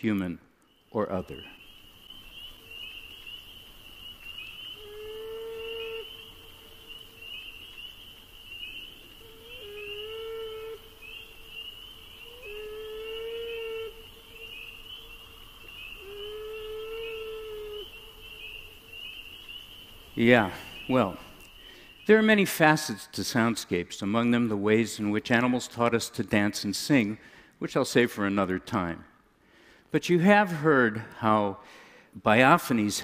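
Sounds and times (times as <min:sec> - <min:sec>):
beaver wailing calls: 0:04.6 - 0:07.6, 0:08.6 - 0:18.8.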